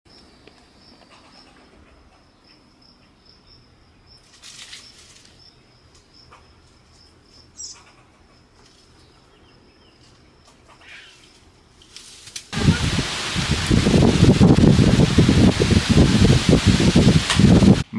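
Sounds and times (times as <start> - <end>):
wind-like rustling rush: 11.3 - 17.9.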